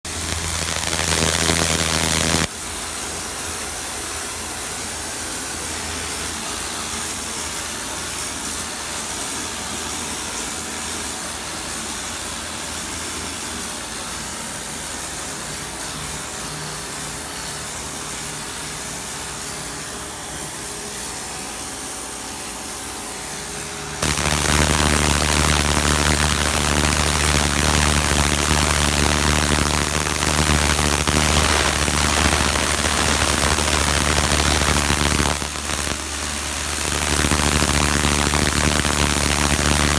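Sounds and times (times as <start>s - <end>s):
pressure washer running: 0.0s - 2.5s, 24.0s - 39.9s.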